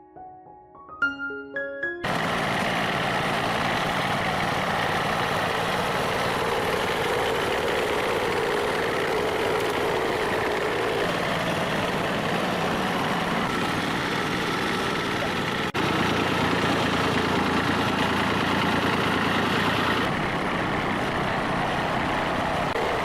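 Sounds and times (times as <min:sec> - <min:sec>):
piano notes: 0:00.0 - 0:02.9
engine idling: 0:02.1 - 0:23.0.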